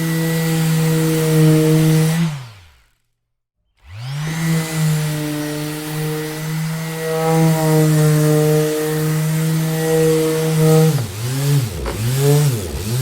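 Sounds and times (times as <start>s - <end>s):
electric orbital sander running: 3.9s - 13.0s.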